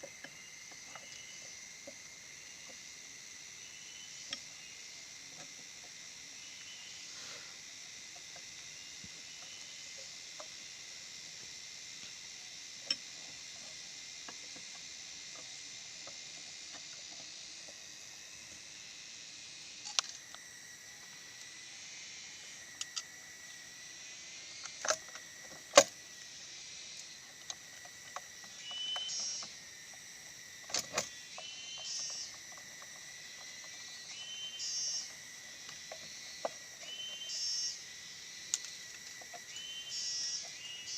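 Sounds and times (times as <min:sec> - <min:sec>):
insects chirring: 0:00.0 - 0:40.9.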